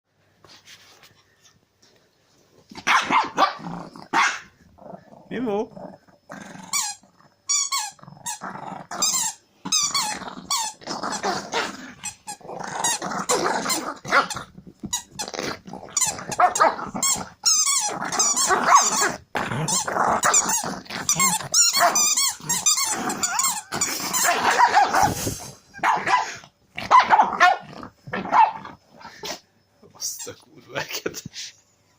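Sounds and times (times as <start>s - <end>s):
dog growling and barking: 2.7s - 29.4s
high-pitched squeaks: 16.0s - 24.7s.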